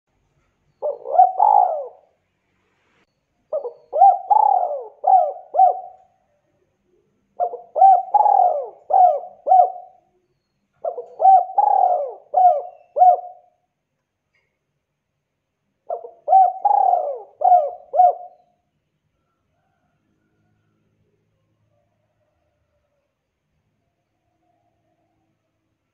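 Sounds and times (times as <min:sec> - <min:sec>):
dove rhythmic cooing: 0:00.7 - 0:02.2, 0:03.5 - 0:13.6, 0:15.8 - 0:18.7.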